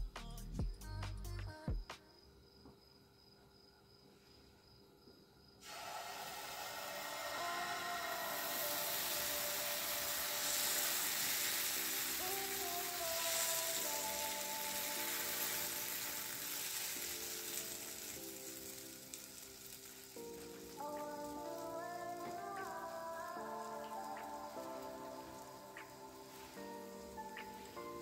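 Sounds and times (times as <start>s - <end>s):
background music: 0.0s - 2.0s, 5.7s - 28.0s
batter sizzling in a frying pan: 5.6s - 28.0s.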